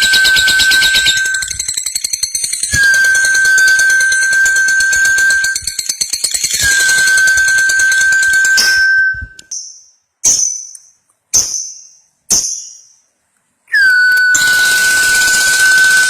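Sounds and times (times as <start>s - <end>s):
whistle-like tone: 0.0s - 9.6s, 13.7s - 16.0s
short ringing notes: 2.6s - 5.8s.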